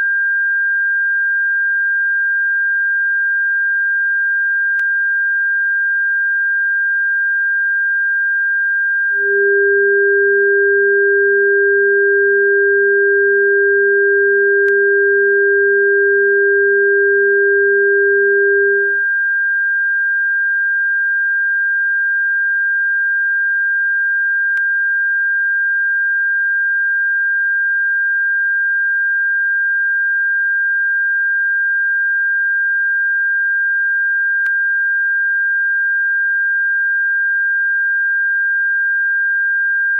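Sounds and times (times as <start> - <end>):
lower steady tone: 8.4 - 19.6
high-pitched tone: 9.2 - 19.0.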